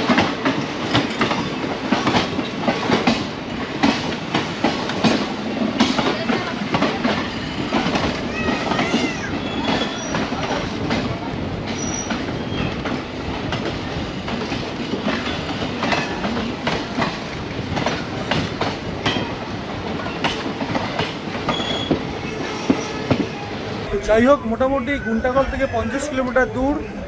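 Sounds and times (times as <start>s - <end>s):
wheels clacking over rail joints: 0.0s - 23.4s
train rumble: 0.0s - 27.0s
high wheel squeaks: 8.4s - 10.5s, 11.8s - 12.8s, 21.5s - 27.0s.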